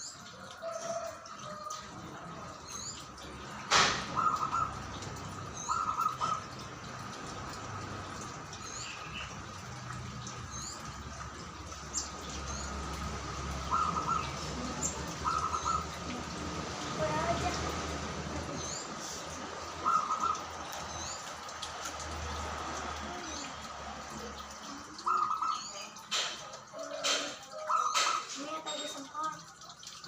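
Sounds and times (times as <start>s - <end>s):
dove rapid staccato cooing: 19.6s - 20.8s.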